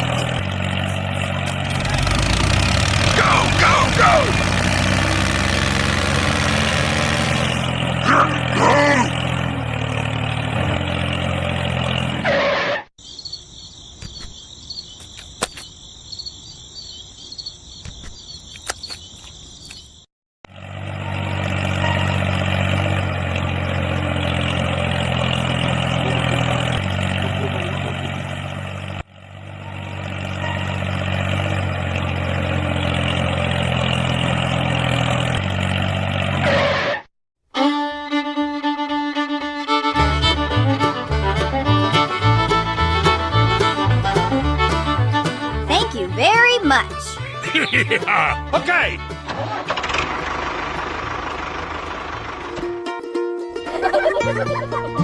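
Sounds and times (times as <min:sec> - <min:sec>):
tractor engine running: 0:00.0 - 0:12.6, 0:17.9 - 0:37.0, 0:37.8 - 0:55.0
crickets chirping: 0:13.0 - 0:20.1.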